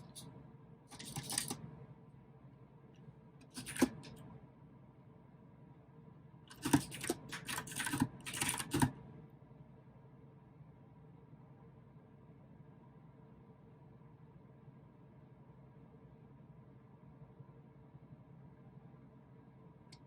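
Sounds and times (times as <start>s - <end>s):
typing on clicky mechanical keyboard: 0.9s - 1.6s, 3.5s - 4.2s, 6.5s - 9.0s.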